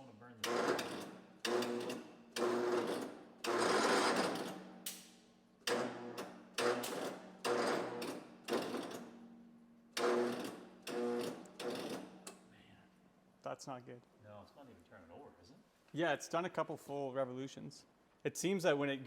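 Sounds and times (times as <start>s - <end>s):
electric starter cranking engine: 0.4s - 4.6s, 5.7s - 9.1s, 10.0s - 12.2s.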